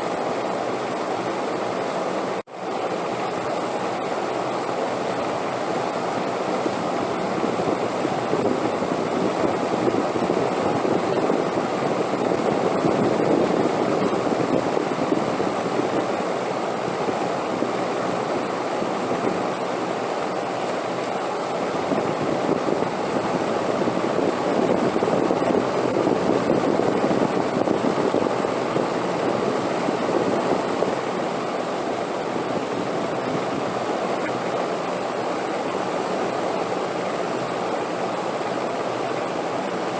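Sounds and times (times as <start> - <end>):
wind gusting: 21.4 - 36.4.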